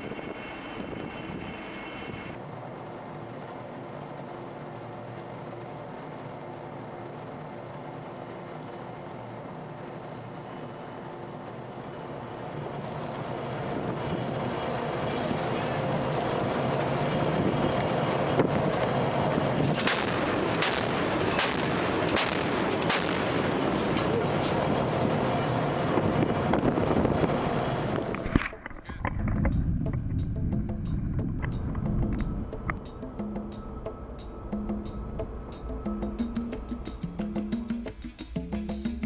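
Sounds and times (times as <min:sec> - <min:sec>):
steady rushing background: 0:11.0 - 0:39.0
naval gun firing: 0:19.8 - 0:24.0.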